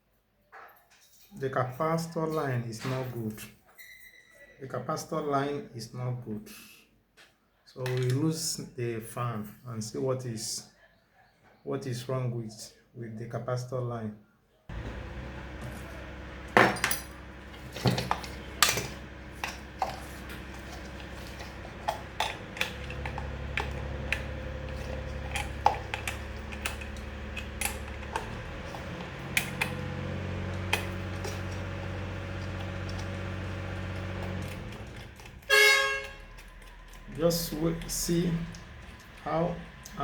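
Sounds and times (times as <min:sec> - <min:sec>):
hand tools tapping metal: 0:14.7 - 0:33.2.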